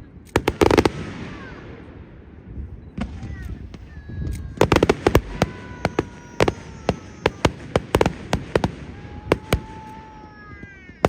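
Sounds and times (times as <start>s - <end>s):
fireworks bangs: 0.0s - 11.0s
fireworks whistling: 0.0s - 11.0s.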